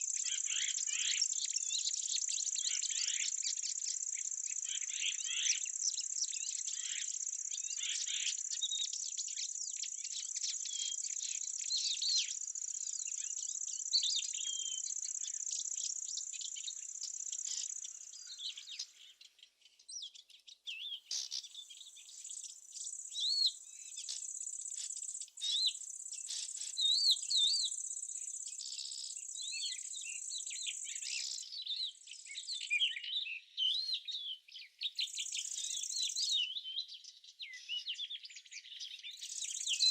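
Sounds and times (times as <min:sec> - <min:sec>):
small birds chirping: 0:00.0 - 0:39.9
insects trilling: 0:21.1 - 0:31.4.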